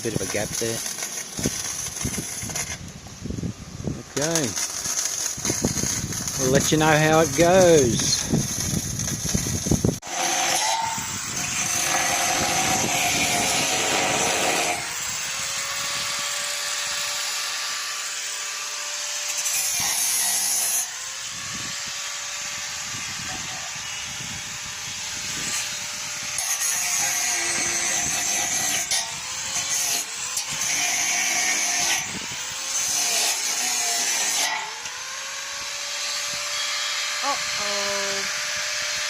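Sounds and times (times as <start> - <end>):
harsh metalworking hiss: 4.2 - 15.0.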